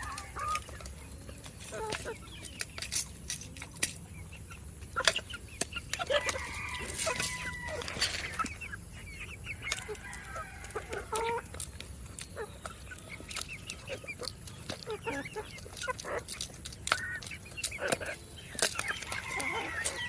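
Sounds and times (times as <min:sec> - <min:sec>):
chicken drawn-out call: 0:00.0 - 0:00.9, 0:05.9 - 0:11.6, 0:16.9 - 0:20.0
chickens clucking: 0:00.0 - 0:20.0.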